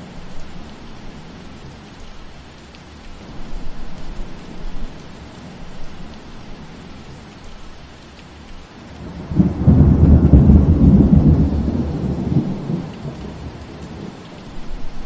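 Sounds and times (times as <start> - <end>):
steady rain: 0.0 - 15.0
thunder rumbling: 8.9 - 15.0.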